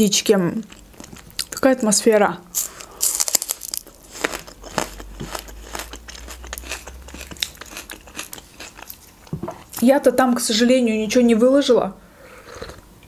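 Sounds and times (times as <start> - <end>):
green onion being chewed: 0.6 - 1.7, 2.6 - 9.3.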